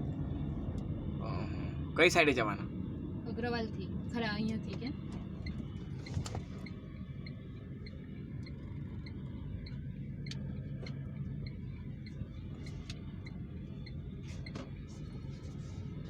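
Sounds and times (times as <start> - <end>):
engine and road rumble: 0.0 - 16.0
turn signal ticking: 3.2 - 16.0.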